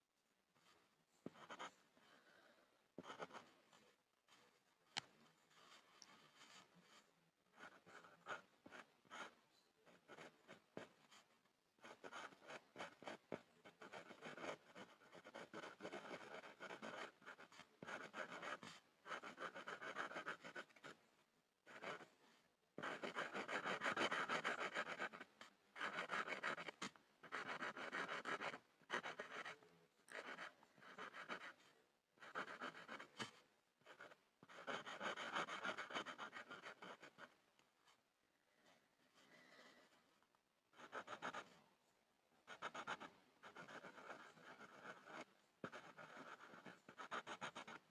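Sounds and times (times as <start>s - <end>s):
pencil scribbling on a board: 7.5s - 11.2s, 11.8s - 21.0s, 21.7s - 22.1s, 22.8s - 31.6s, 32.2s - 37.3s, 40.8s - 41.5s, 42.5s - 47.9s.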